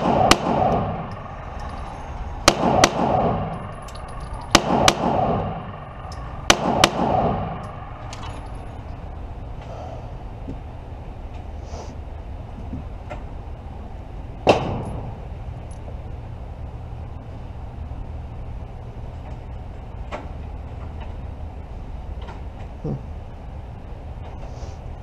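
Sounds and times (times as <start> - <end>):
pistol shots echoing: 0.0 - 8.9.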